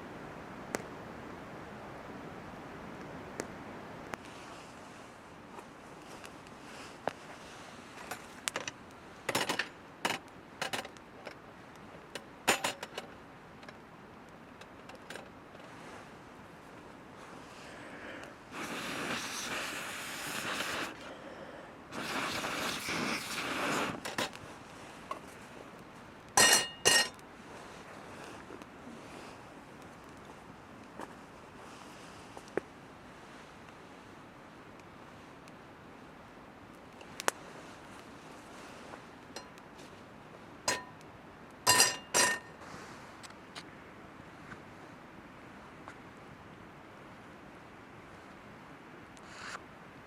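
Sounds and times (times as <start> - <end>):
small clicks and knocks: 8.0 - 13.8.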